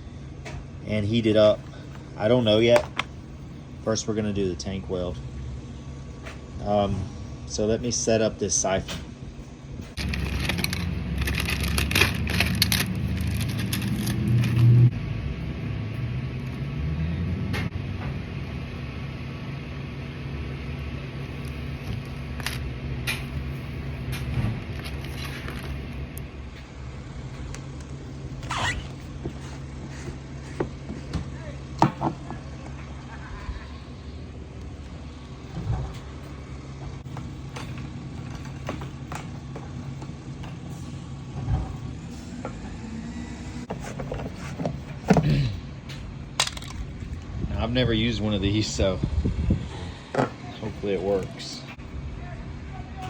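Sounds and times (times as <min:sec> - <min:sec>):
low mechanical hum: 0:00.0 - 0:53.0
plastic parts clicking and knocking: 0:10.0 - 0:14.7, 0:46.4 - 0:46.8.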